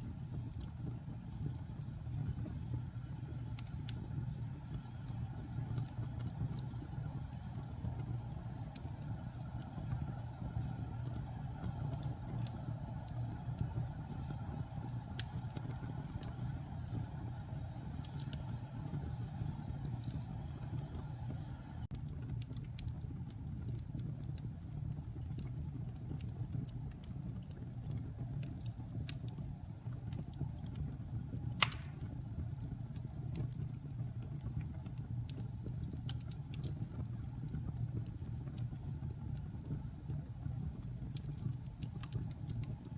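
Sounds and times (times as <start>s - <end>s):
wood fire crackling: 0.0s - 42.9s
loud pop from fire: 31.6s - 32.2s.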